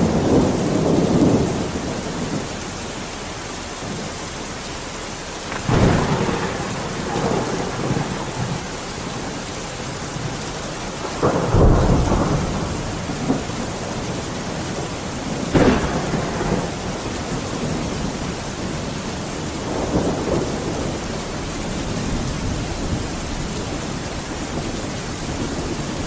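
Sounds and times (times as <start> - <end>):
heavy rain: 0.0 - 26.0
rolling thunder: 5.4 - 26.0.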